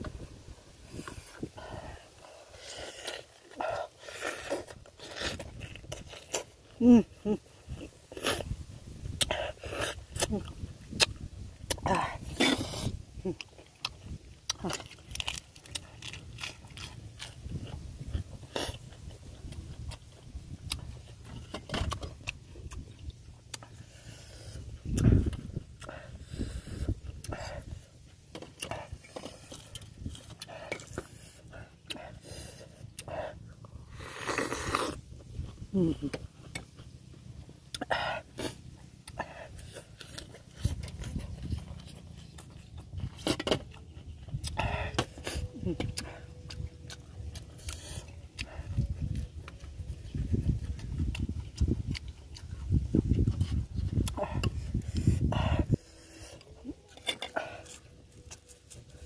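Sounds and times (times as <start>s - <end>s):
chewing with crisp crunches: 0.0s - 59.0s.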